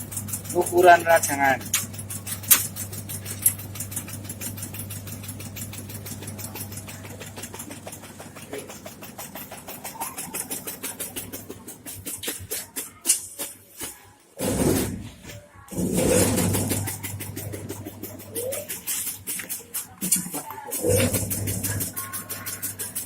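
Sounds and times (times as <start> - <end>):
motor hum: 0.0 - 11.8, 20.3 - 23.0.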